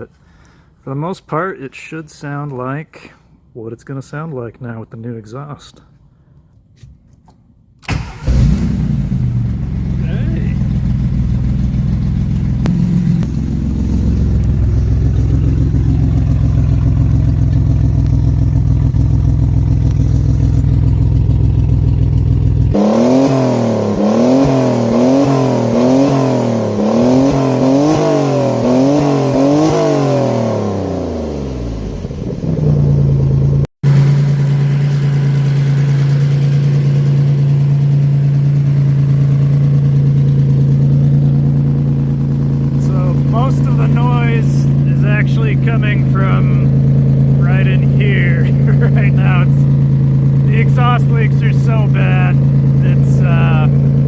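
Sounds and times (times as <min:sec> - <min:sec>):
exhaust leaks: 0:07.9 - 0:24.2, 0:31.8 - 0:54.0
car engine revving: 0:07.9 - 0:54.0.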